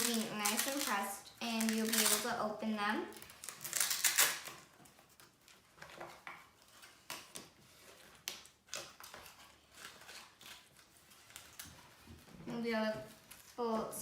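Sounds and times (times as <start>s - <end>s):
paper and cardboard rustling: 0.0s - 2.3s, 3.2s - 14.0s.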